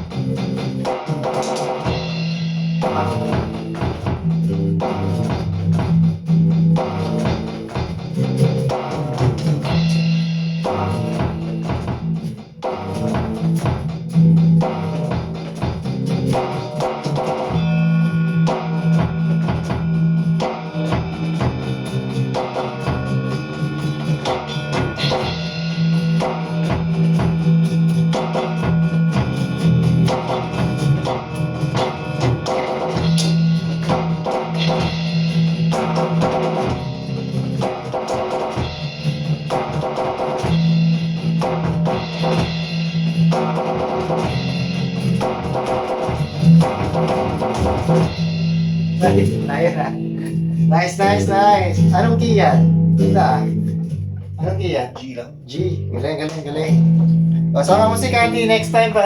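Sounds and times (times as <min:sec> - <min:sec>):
electronic drum beat: 0:00.0 - 0:55.1, 0:56.3 - 0:59.0
bass guitar line: 0:00.0 - 0:59.0.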